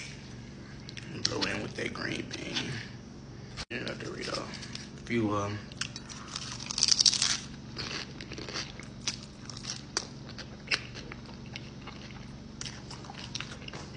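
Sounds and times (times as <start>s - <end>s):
chip crunching: 3.9s - 5.0s, 5.7s - 13.9s
person chewing: 5.7s - 13.9s.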